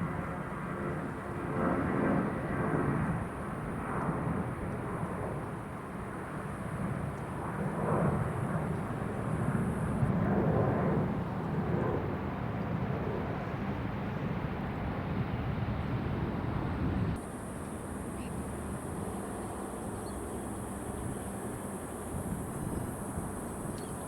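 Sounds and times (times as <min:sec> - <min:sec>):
jet airliner engine rumble: 0:00.0 - 0:24.0.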